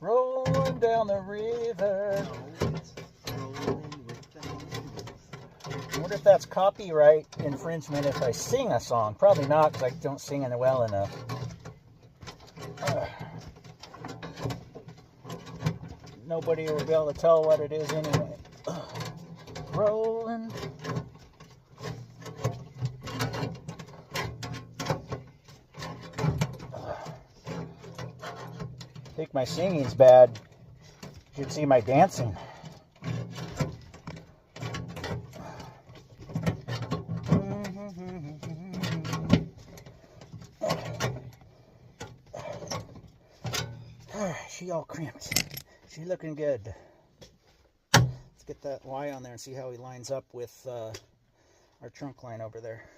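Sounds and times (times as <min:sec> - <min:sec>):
sheet metal clicking and scraping: 0:00.3 - 0:44.3, 0:45.1 - 0:45.8
hand crimper crunching metal: 0:45.2 - 0:45.7.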